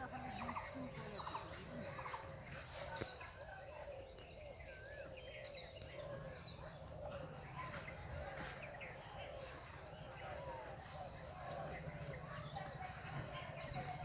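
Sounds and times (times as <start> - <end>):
birds chirping and whistling: 4.0 - 14.0.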